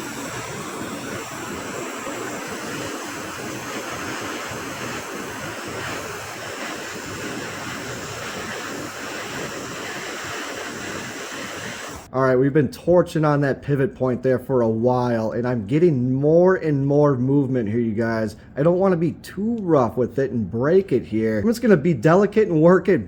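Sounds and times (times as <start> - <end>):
blowtorch flame burning: 0.0 - 12.1.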